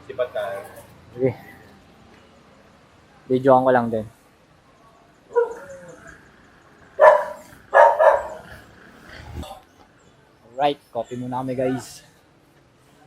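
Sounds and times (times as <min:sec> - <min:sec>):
dog barking: 0:05.3 - 0:05.7, 0:07.0 - 0:08.5.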